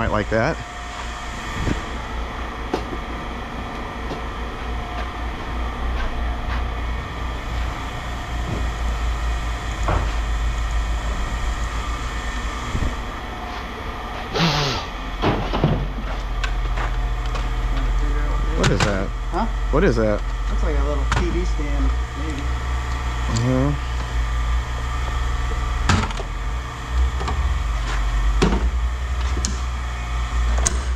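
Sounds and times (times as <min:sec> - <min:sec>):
low engine hum: 0:00.0 - 0:30.9
loud hiss-like scrape: 0:14.3 - 0:14.9.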